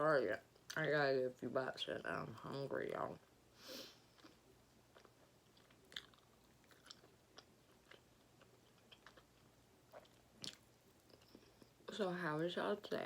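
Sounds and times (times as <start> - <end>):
chewing with mouth clicks: 4.1 - 11.8.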